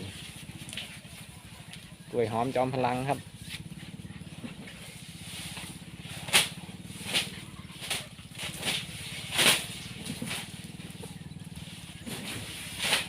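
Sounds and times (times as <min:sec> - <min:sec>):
steady low hum: 0:00.0 - 0:13.0
elephant scraping against brush: 0:04.9 - 0:10.8, 0:12.0 - 0:13.0.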